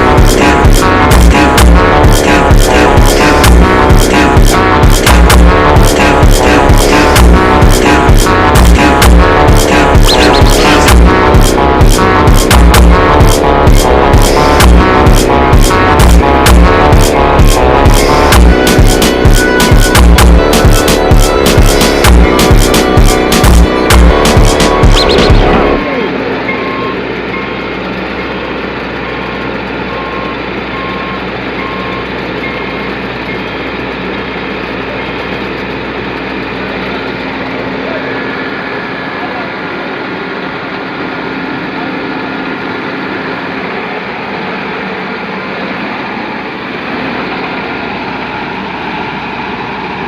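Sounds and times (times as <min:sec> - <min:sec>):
combine harvester engine running: 0:00.0 - 0:50.0
reversing beeper short beeps: 0:09.9 - 0:10.9, 0:24.8 - 0:25.6, 0:26.4 - 0:27.6, 0:29.9 - 0:33.4.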